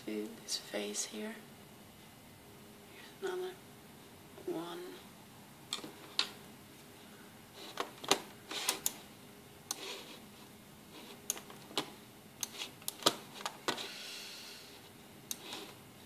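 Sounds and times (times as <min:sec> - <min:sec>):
computer mouse clicking: 0:07.8 - 0:09.0, 0:11.2 - 0:13.2.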